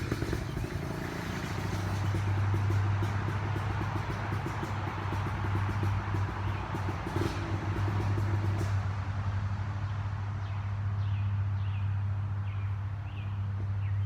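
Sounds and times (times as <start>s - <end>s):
birds chirping: 0.0s - 2.7s
atv engine idling: 0.0s - 14.0s.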